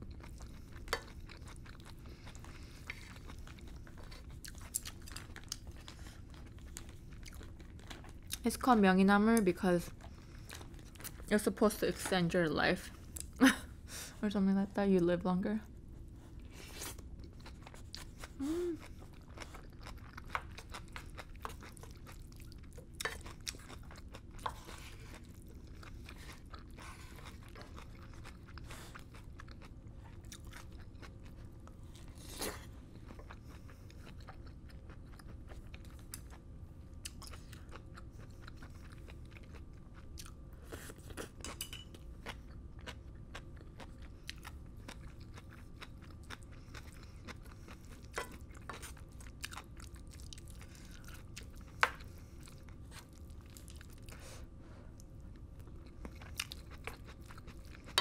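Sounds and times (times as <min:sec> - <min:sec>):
person chewing food: 0:00.0 - 0:08.4, 0:09.8 - 0:11.3, 0:16.0 - 0:58.0
person humming: 0:18.4 - 0:18.8.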